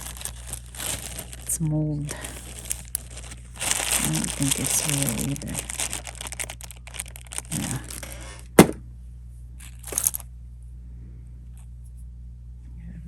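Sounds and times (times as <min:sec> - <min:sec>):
plastic bag crinkling: 0:00.0 - 0:08.8, 0:09.7 - 0:10.2
sharp knock: 0:08.6 - 0:08.8.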